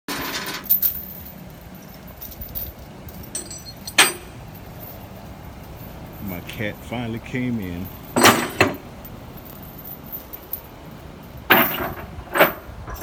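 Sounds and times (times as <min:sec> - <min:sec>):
light metallic clinks: 0:00.6 - 0:06.6
steady low rumble: 0:00.6 - 0:13.0
loud metal clank ringing: 0:03.3 - 0:05.0, 0:08.0 - 0:08.9.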